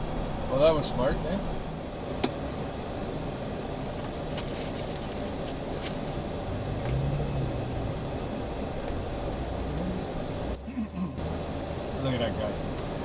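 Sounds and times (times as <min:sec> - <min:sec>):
car engine and road rumble: 0:00.0 - 0:13.0
light ticks: 0:06.4 - 0:10.5.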